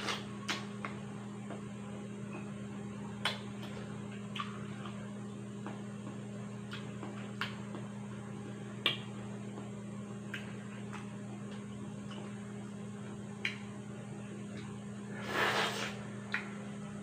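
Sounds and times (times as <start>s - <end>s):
steady low hum: 0.0s - 17.0s
person chewing with wet mouth clicks: 3.2s - 5.0s, 6.6s - 7.6s, 13.4s - 13.7s.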